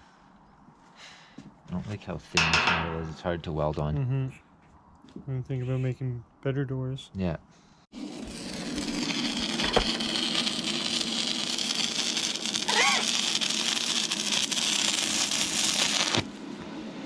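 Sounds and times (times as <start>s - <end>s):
welding arc crackling sizzle: 8.0s - 16.4s.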